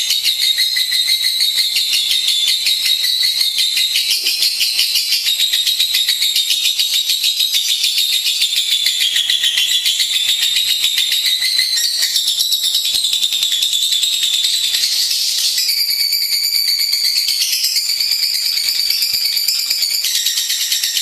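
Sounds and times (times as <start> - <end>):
lovebird chattering trill: 0.0 - 16.0.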